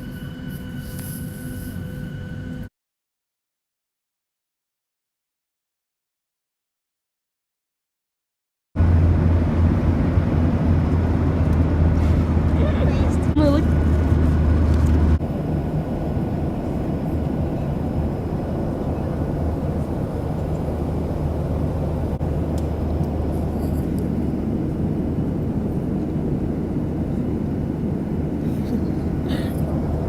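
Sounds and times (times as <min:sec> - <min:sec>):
airliner cabin engine drone: 0:00.0 - 0:02.7, 0:08.8 - 0:30.0.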